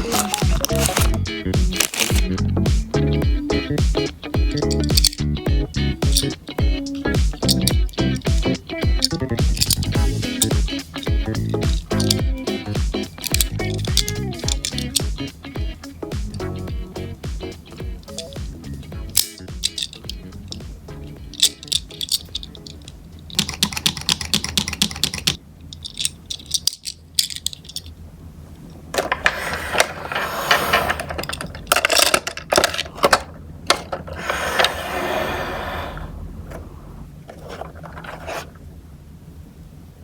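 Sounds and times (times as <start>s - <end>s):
plastic rustling and scraping: 0.0s - 2.3s, 28.9s - 38.7s
rapid ratchet-like clicking: 3.9s - 15.3s, 17.4s - 27.5s.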